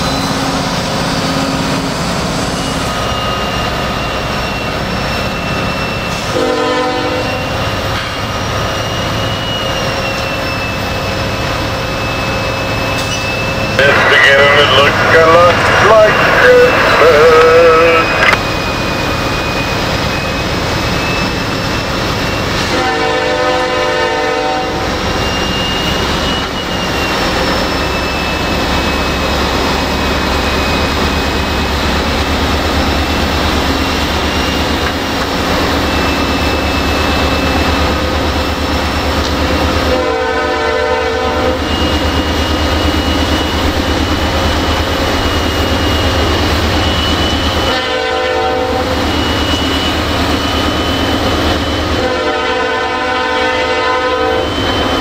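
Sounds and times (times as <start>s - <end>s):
high engine whine: 0.0s - 22.9s, 41.3s - 47.8s
diesel locomotive engines rumbling: 0.0s - 55.0s
train horn blasts: 6.2s - 7.5s, 22.6s - 25.0s, 39.8s - 41.6s, 47.6s - 48.9s, 52.0s - 54.6s.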